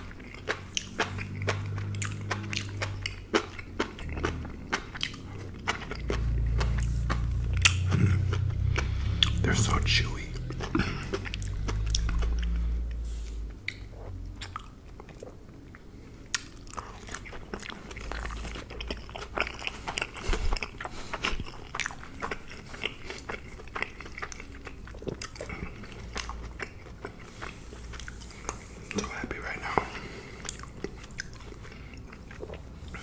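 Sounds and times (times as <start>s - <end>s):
chewing mushrooms: 0.0s - 33.0s
heavy low rumble: 0.7s - 14.7s.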